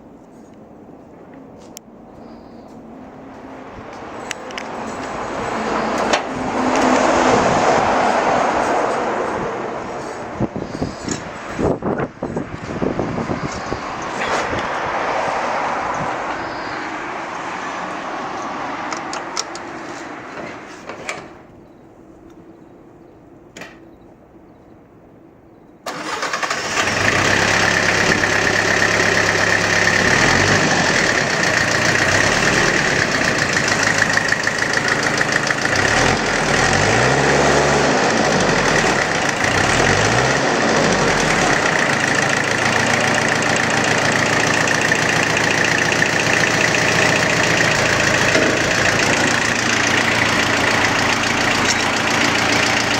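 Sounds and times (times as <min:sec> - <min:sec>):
tractor engine running: 0:03.2 - 0:21.4, 0:25.9 - 0:52.9.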